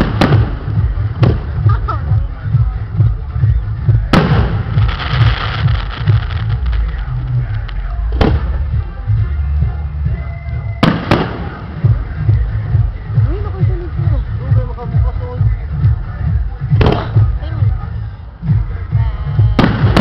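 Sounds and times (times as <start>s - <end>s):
firework crackling: 0.0s - 9.1s, 10.8s - 15.0s, 18.6s - 20.0s
loud music with heavy bass: 0.0s - 20.0s
firework shells bursting: 4.2s - 8.6s.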